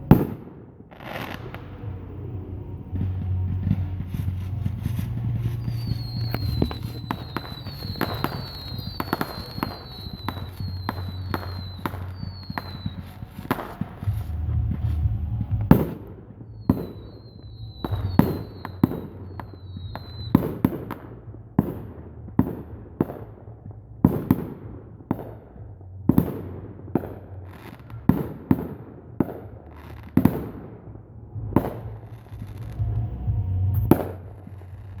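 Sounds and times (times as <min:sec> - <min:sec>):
fireworks bangs: 0:00.0 - 0:35.0
low steady rumble: 0:01.2 - 0:35.0
high falling chirps: 0:03.5 - 0:14.4.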